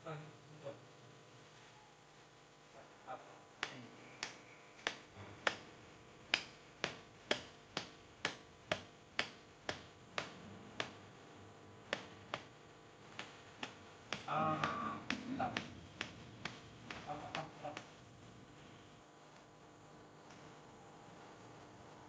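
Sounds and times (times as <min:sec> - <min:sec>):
sharp clicks or taps: 0:06.3 - 0:11.0, 0:11.9 - 0:12.5, 0:13.1 - 0:18.0.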